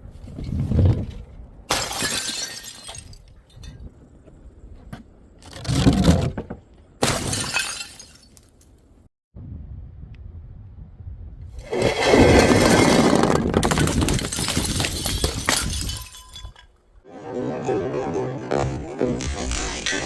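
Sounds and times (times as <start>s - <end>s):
glass shattering: 1.7s - 3.8s, 7.0s - 8.6s, 11.7s - 16.8s
glass pieces tinkling: 13.6s - 16.7s.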